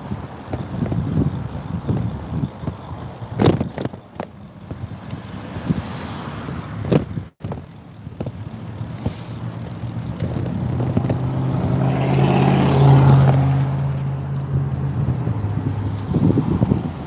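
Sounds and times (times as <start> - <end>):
road noise: 0.0 - 17.0
vehicle engine running: 7.3 - 17.0.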